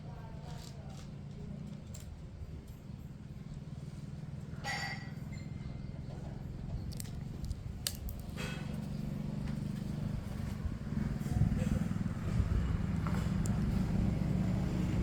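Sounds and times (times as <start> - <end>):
wind buffeting microphone: 10.2 - 15.0.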